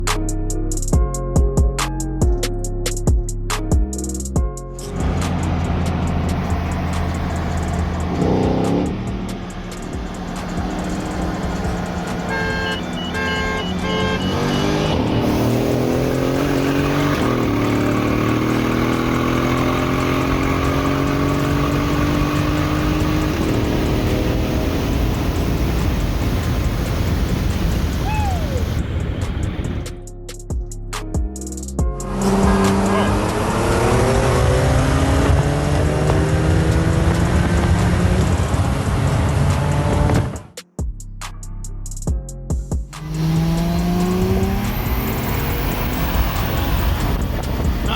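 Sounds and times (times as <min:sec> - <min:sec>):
car engine accelerating hard: 0:04.8 - 0:30.0, 0:31.9 - 0:40.5, 0:43.0 - 0:47.9
loud rush of noise: 0:04.8 - 0:30.0, 0:43.0 - 0:47.9.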